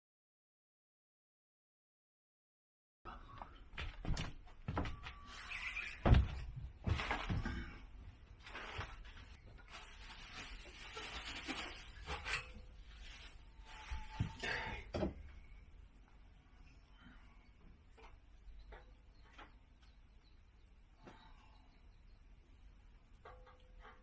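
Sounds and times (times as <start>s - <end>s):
rustling and scraping: 3.8s - 15.5s, 23.1s - 24.0s
parts knocking and clunking: 23.1s - 24.0s.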